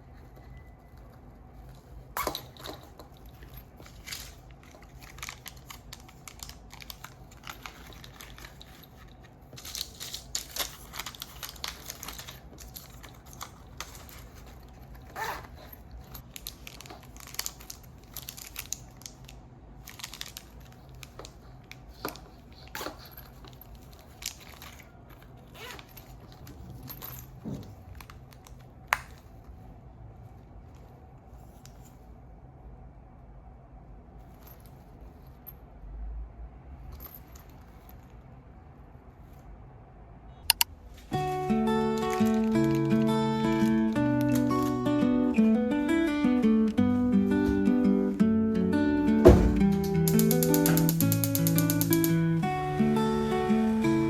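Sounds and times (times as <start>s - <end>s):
crinkling and rustling: 0.0s - 32.3s, 40.8s - 48.4s, 49.0s - 52.3s.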